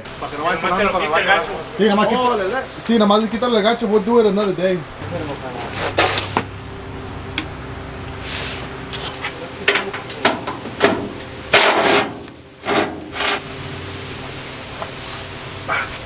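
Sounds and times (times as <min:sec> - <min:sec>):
low hum: 0:00.0 - 0:11.6
rushing noise: 0:00.0 - 0:16.0
knocks and clatter: 0:05.0 - 0:13.4.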